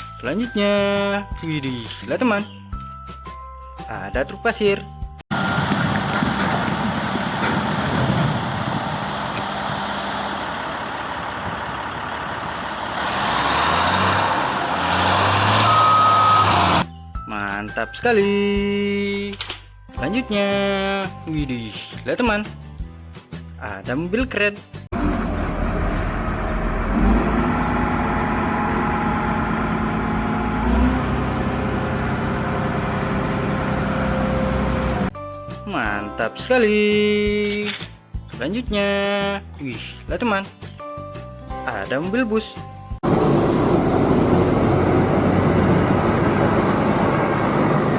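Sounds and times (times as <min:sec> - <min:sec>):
truck diesel engine rumbling: 0:05.8 - 0:16.8, 0:24.9 - 0:35.1, 0:43.0 - 0:47.9
car engine idling: 0:10.2 - 0:13.0, 0:25.7 - 0:35.1
steady beep: 0:15.6 - 0:16.8.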